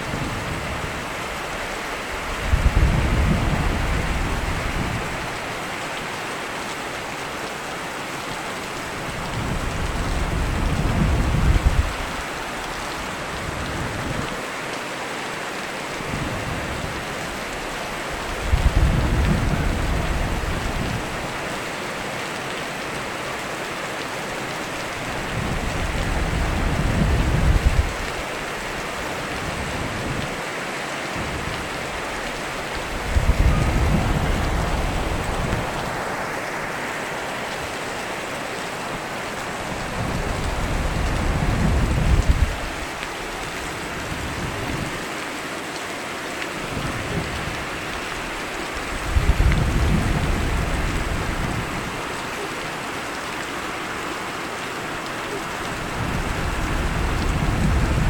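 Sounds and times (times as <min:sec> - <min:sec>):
heavy rain: 0:00.0 - 0:58.0
thunder rumbling: 0:02.4 - 0:05.4, 0:18.2 - 0:21.2, 0:25.2 - 0:28.2, 0:31.2 - 0:36.8, 0:39.6 - 0:43.0, 0:48.3 - 0:52.0, 0:55.6 - 0:58.0.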